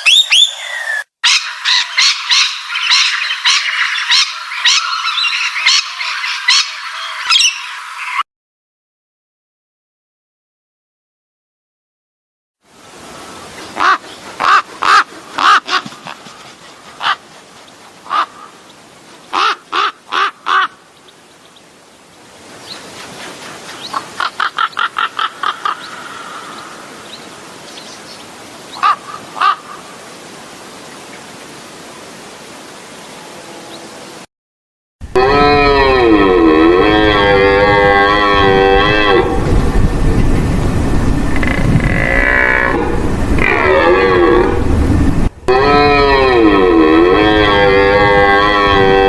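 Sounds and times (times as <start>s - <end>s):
bird harsh calls: 0.0s - 8.2s, 13.1s - 21.8s, 22.6s - 30.0s
outdoor background hiss: 12.6s - 34.3s.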